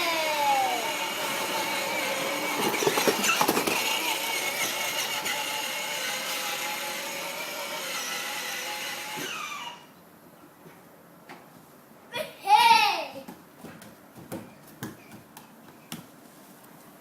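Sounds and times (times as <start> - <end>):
quad bike engine whine: 0.0 - 7.8.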